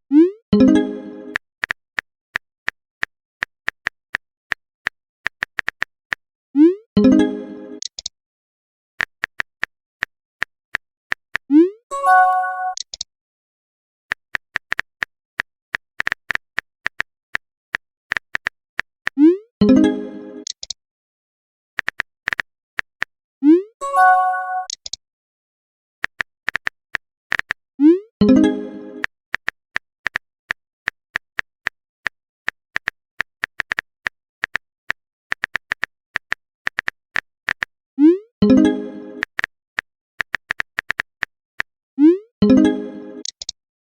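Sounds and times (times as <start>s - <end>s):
message alert chime: 0.1s - 1.4s, 7.0s - 7.8s, 11.9s - 12.8s, 23.5s - 24.7s, 27.8s - 29.0s, 38.0s - 39.2s, 42.1s - 43.3s
phone keyboard typing clicks: 7.8s - 8.1s, 12.1s - 13.1s, 20.4s - 20.8s, 24.5s - 25.0s, 32.5s - 37.7s, 40.2s - 41.3s, 42.5s - 43.6s.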